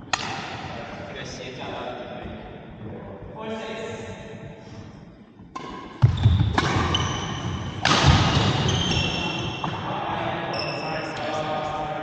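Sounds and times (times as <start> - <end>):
racket hitting shuttlecock: 0.1 - 0.7, 5.5 - 9.8
shoe squeaks on court floor: 6.0 - 9.8, 10.5 - 11.1.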